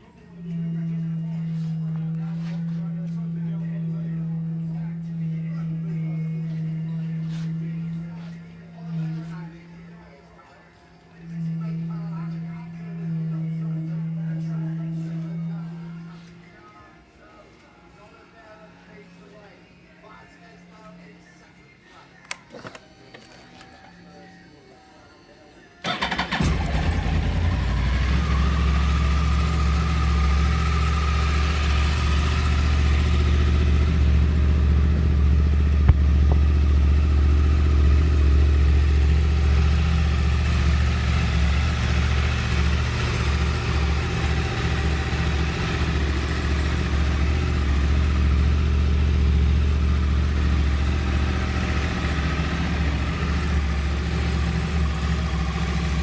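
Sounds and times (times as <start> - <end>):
motorcycle engine idling: 0.0 - 10.0, 11.3 - 16.4, 25.8 - 56.0.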